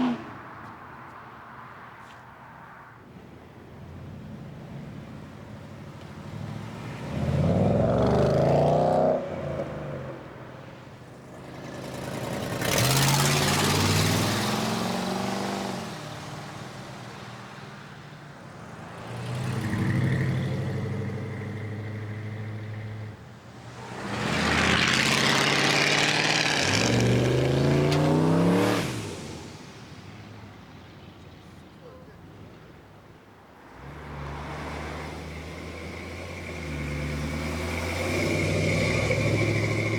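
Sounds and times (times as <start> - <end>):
car engines revving hard: 0.0 - 0.6, 6.0 - 10.3, 11.1 - 17.6, 18.4 - 30.5, 33.6 - 39.9.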